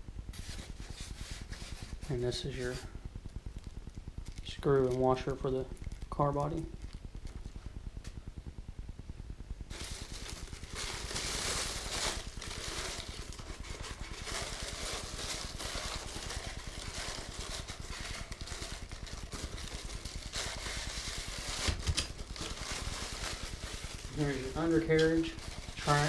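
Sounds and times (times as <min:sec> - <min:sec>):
steady low rumble: 0:00.0 - 0:26.0
plastic packaging crinkling: 0:00.4 - 0:07.7, 0:09.7 - 0:26.0.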